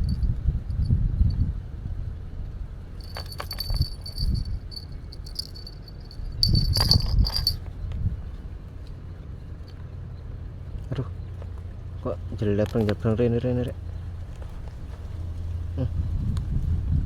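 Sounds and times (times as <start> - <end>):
small metal objects jingling: 3.0 - 7.7
low rumble: 3.0 - 8.2.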